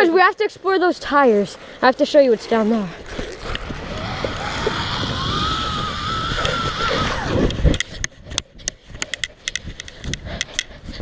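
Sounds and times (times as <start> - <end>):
zip line pulley whine: 2.9 - 8.0.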